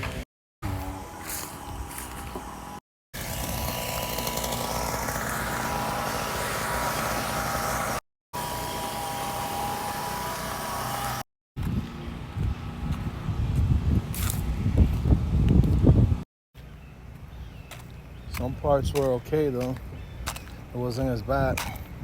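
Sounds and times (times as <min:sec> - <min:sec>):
small petrol engine running: 0:00.1 - 0:11.2.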